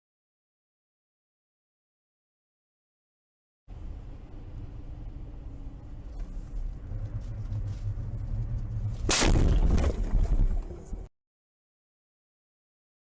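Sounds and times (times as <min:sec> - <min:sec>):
vehicle rumbling on road: 0:03.7 - 0:11.1
vehicle collision crash: 0:08.9 - 0:11.1.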